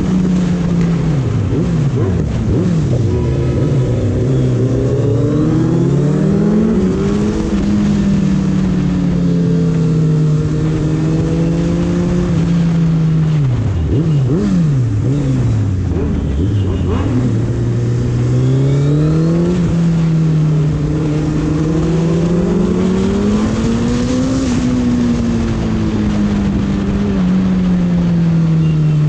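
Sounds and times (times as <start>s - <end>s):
motorcycle engine while riding: 0.0s - 29.0s.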